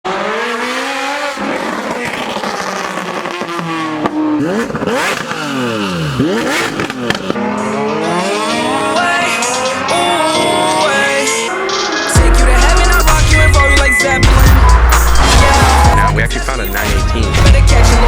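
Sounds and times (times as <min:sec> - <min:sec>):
sports car engine revving: 0:00.1 - 0:18.0.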